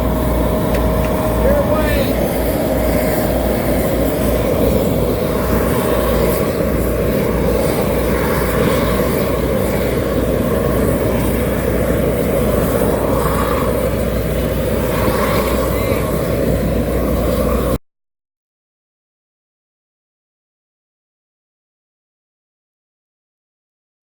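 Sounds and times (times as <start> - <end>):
heavy construction machinery rumbling: 0.0 - 17.4.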